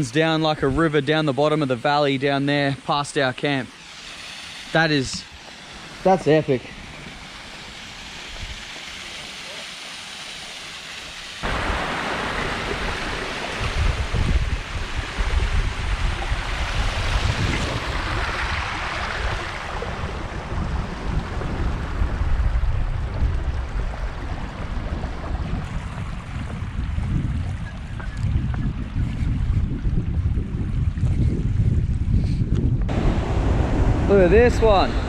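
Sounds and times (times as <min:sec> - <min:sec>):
rushing wind and water hiss: 0:00.0 - 0:35.0
gusting low rumble: 0:11.4 - 0:35.0.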